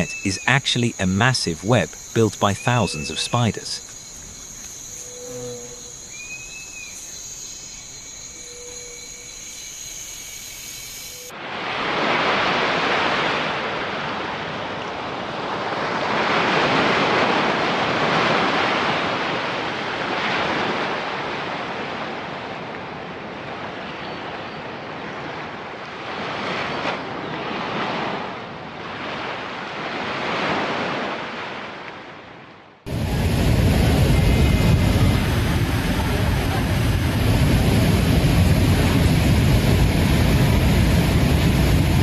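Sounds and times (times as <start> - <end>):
high insect chirring: 0.0 - 11.3.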